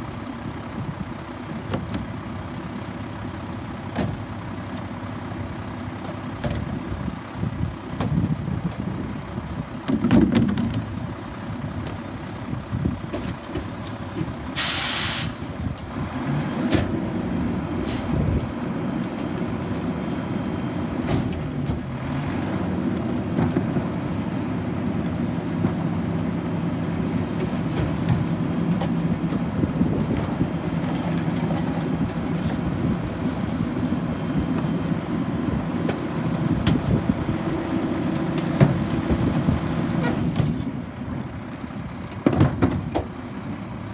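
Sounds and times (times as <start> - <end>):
garbage truck engine running: 0.0 - 43.9
air brakes hissing: 14.5 - 15.6, 17.8 - 18.4.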